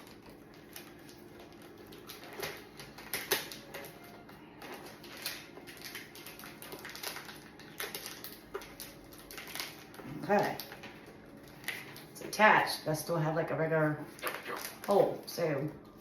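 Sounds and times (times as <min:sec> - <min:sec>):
cardboard and tape rustling: 0:00.0 - 0:12.8.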